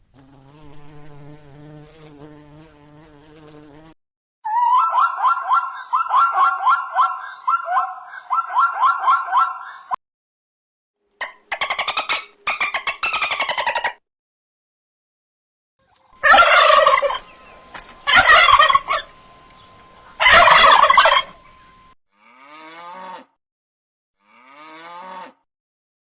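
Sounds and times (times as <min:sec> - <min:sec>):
turkey gobbling: 0:04.5 - 0:09.9, 0:11.2 - 0:14.0, 0:16.2 - 0:19.2, 0:20.2 - 0:21.5.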